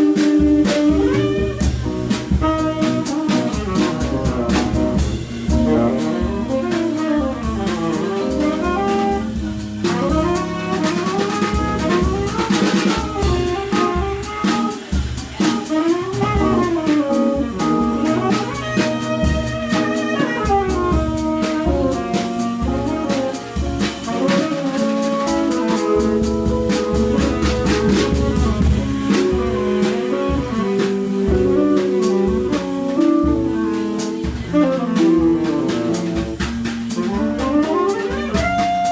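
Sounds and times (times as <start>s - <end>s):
tenor saxophone runs: 0.0s - 3.7s, 37.1s - 38.9s
drums and cymbals: 0.0s - 38.9s.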